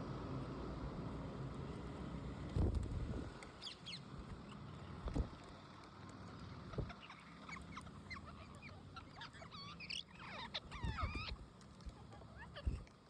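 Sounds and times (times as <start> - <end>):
parrots chirping: 6.7 - 12.9.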